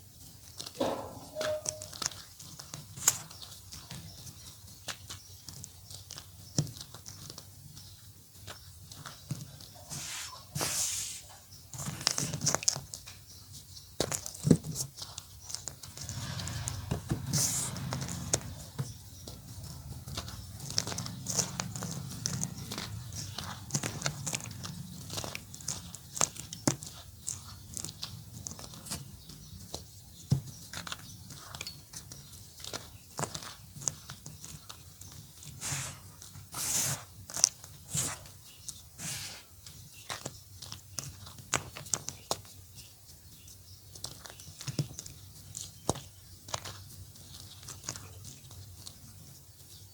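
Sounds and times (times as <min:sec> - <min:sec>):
soft grinding rustle: 0:00.0 - 0:49.9
chalk crunching: 0:09.0 - 0:12.8, 0:14.0 - 0:42.4.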